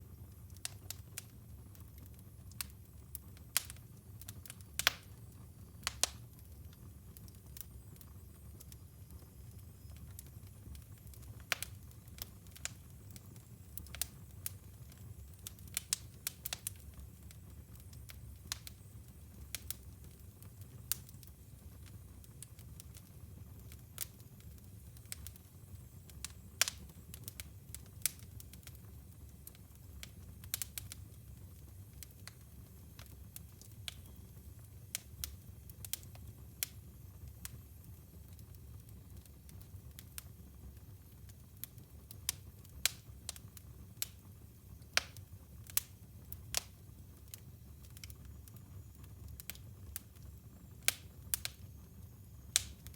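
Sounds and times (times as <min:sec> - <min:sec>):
fire low rumble: 0:00.0 - 0:52.9
wood fire crackling: 0:00.0 - 0:52.9.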